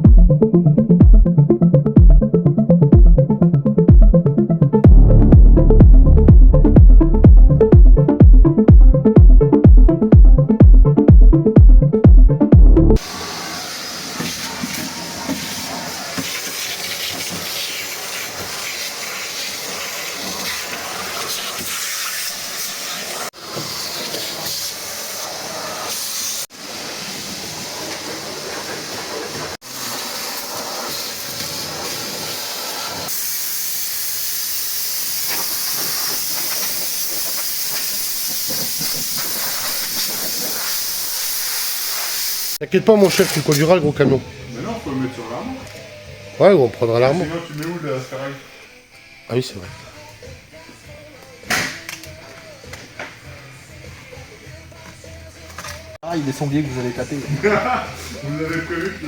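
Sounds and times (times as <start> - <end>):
steady hissing spray: 13.0 - 42.6.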